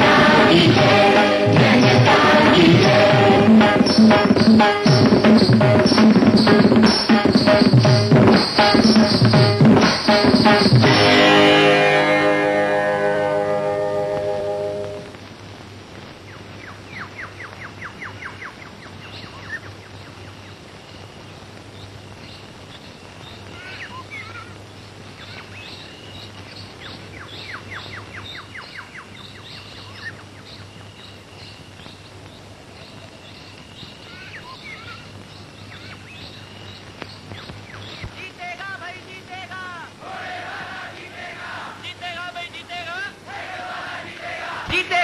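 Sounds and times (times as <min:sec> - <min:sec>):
low hum and hiss: 0:00.0 - 0:45.0
birds singing: 0:21.7 - 0:38.2.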